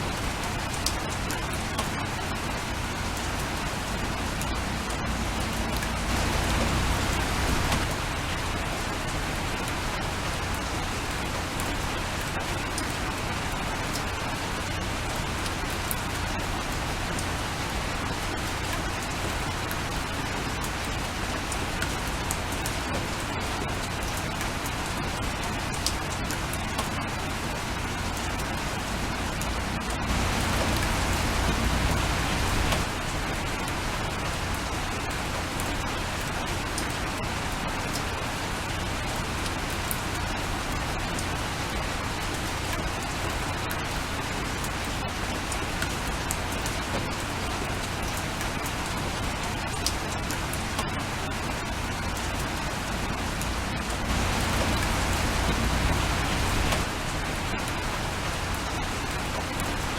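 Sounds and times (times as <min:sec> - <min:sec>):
steady rain falling: 0:00.0 - 0:59.9
raindrop ticks: 0:03.1 - 0:08.0, 0:28.2 - 0:35.0, 0:44.6 - 0:56.9.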